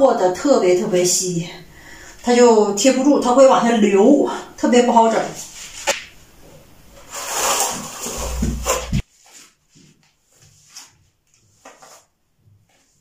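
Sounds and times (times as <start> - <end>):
trowel scraping tile cement: 7.0 - 9.0.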